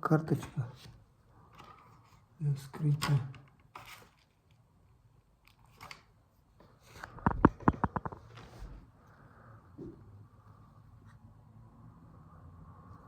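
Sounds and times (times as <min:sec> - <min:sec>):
clicks and scrapes on smartphone: 0:06.9 - 0:08.6.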